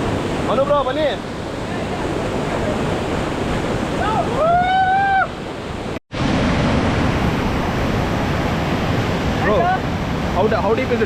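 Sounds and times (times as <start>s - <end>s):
waterfall rushing: 0.0s - 11.0s
person shouting long call: 4.0s - 5.3s.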